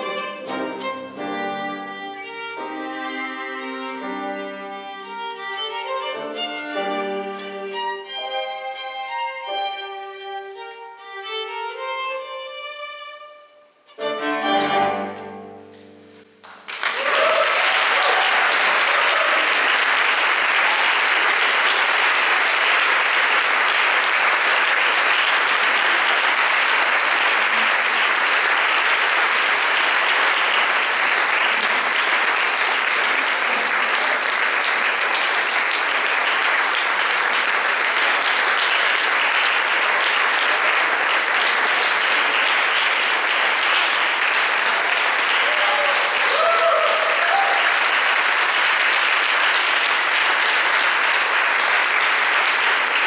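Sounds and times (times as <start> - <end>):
violin cello and piano trio: 0.0 - 13.0, 13.9 - 15.6
audience applause: 16.4 - 53.0.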